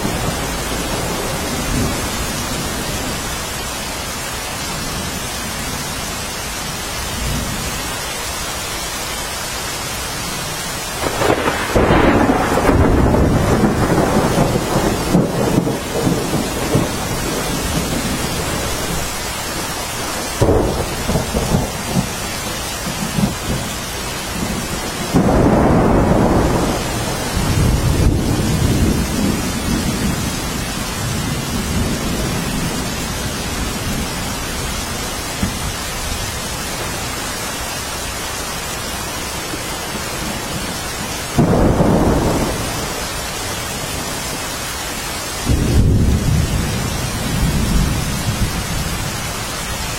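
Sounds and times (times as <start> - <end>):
loud thunderclaps: 0.0 - 3.4, 11.0 - 37.2, 39.5 - 44.8, 45.4 - 49.2
rolling thunder: 0.0 - 3.8, 11.0 - 37.4, 39.4 - 49.9
steady rain: 0.0 - 49.9.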